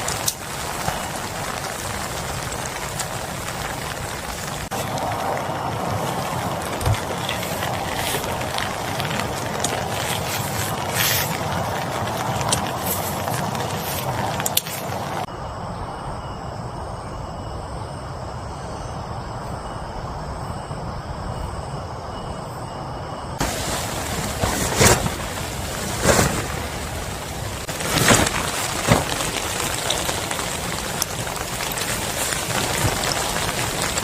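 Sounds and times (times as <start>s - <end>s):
heavy rain falling: 0.0s - 15.3s, 23.4s - 34.0s.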